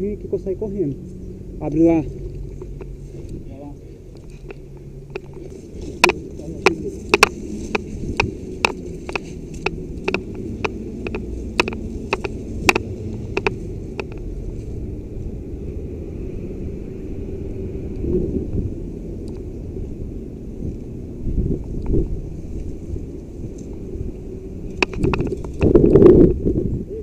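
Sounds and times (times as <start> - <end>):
wind rumble on microphone: 0.0 - 27.0
sharp irregular cracks: 4.1 - 14.3, 24.6 - 26.0.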